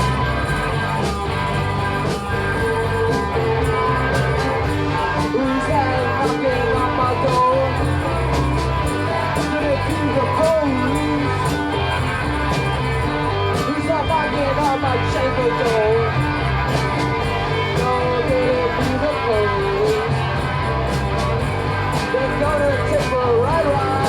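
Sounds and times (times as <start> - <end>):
rock band playing: 0.0 - 24.0
wavering lead guitar line: 0.0 - 24.0.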